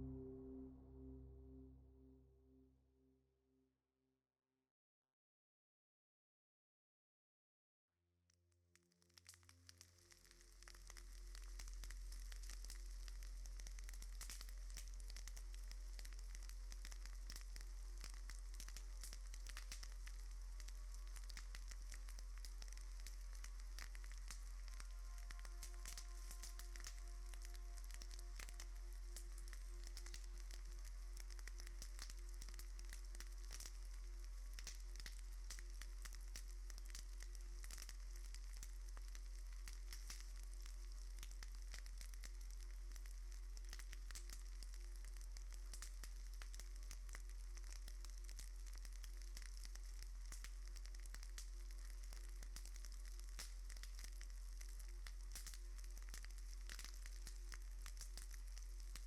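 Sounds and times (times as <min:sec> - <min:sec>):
low hum: 0:00.0 - 0:02.7
crackling hiss: 0:09.1 - 0:59.0.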